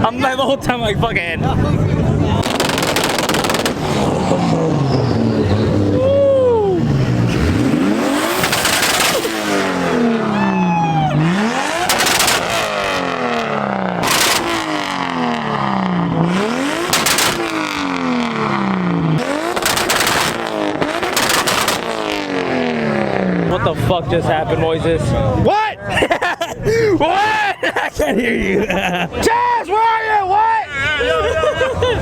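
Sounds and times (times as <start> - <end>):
exhaust bangs: 0.6 - 25.5
sports car engine revving: 1.3 - 25.4.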